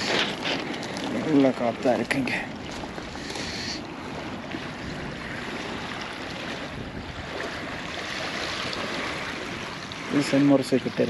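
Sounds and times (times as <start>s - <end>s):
strong wind buffeting microphone: 2.5s - 10.1s.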